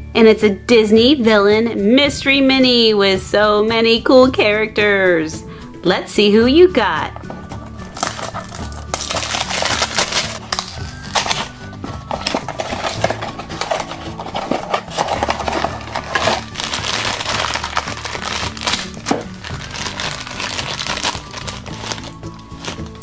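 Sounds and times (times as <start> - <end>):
background music: 0.0 - 23.0
toy packaging crinkling: 7.8 - 23.0.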